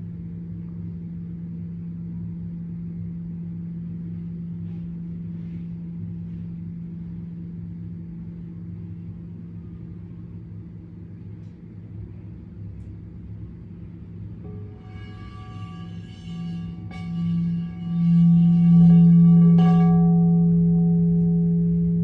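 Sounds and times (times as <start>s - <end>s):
steady low hum with rumble: 0.0s - 22.0s.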